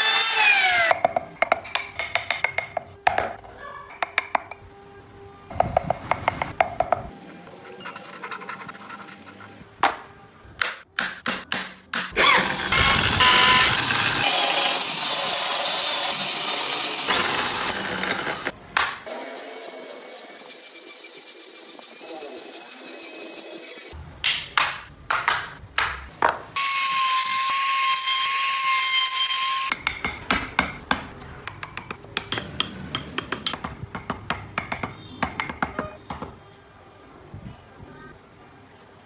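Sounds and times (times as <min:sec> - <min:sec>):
small power tool whining: 0:12.2 - 0:18.5.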